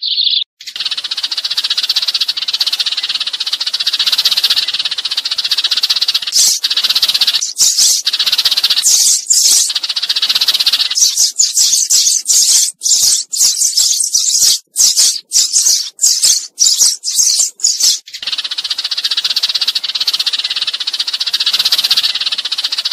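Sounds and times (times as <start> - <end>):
sparrows chirping: 0.0 - 22.9.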